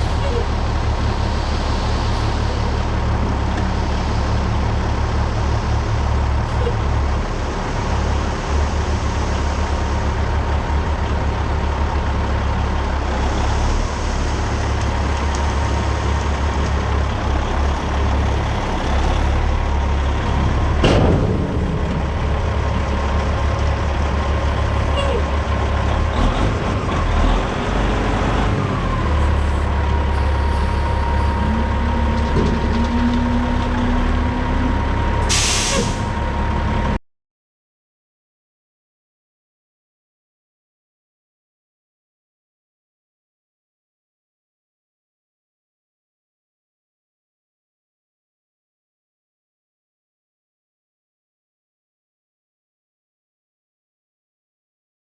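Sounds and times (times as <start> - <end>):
diesel truck engine rumbling: 0.0 - 37.0
road noise: 0.0 - 37.0
sharp clank or squeak: 35.6 - 36.0.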